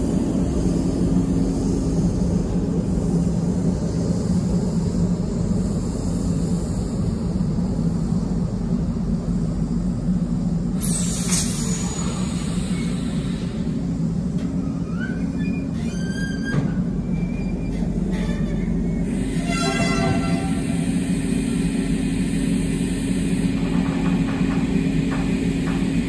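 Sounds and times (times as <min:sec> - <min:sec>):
freight train rumbling past: 0:00.0 - 0:26.0
wheel squeals: 0:14.6 - 0:20.6.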